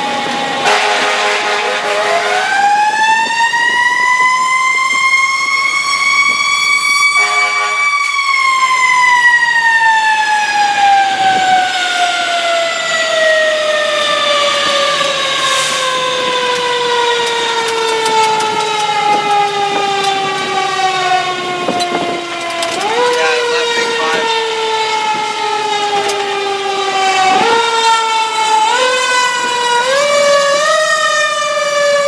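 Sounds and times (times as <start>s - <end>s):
fire engine siren winding: 0.0s - 32.0s
low horn-like blast: 0.6s - 2.8s, 7.2s - 7.9s.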